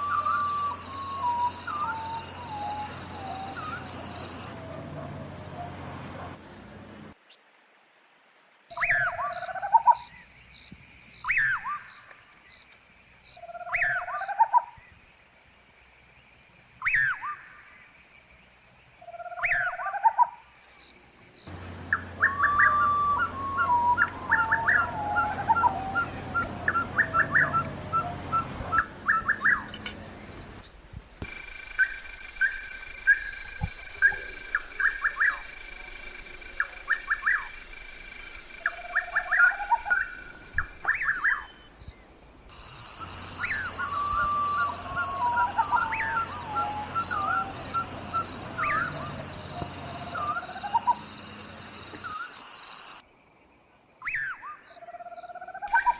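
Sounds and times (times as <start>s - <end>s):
bird repeating sweeping call: 0.0s - 6.4s, 21.5s - 41.7s, 43.0s - 51.1s, 55.7s - 55.9s
birds chirping and whistling: 0.0s - 6.4s, 21.5s - 41.8s, 43.1s - 51.0s.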